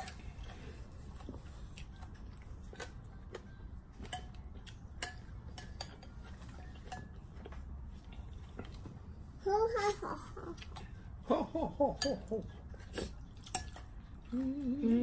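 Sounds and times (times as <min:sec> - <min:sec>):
utensils clinking against bowls: 0:04.0 - 0:07.6, 0:11.9 - 0:14.0.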